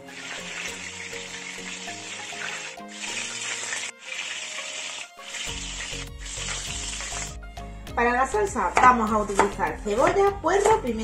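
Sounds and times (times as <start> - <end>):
meatballs sizzling in a pan: 0.0 - 7.5
background music: 0.0 - 11.0.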